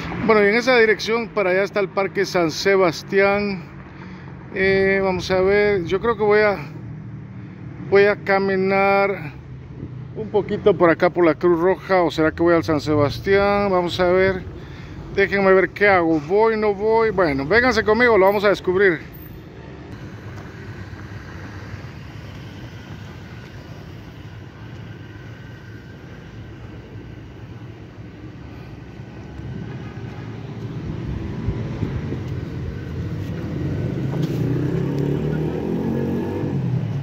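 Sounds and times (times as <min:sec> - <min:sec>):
street traffic rumble: 0:00.0 - 0:37.0
vehicle engine accelerating: 0:19.7 - 0:37.0.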